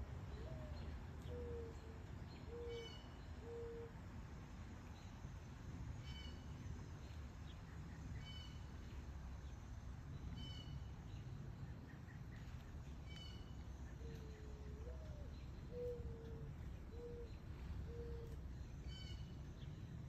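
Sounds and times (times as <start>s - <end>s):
bird cooing: 0.3s - 4.0s, 13.9s - 19.1s.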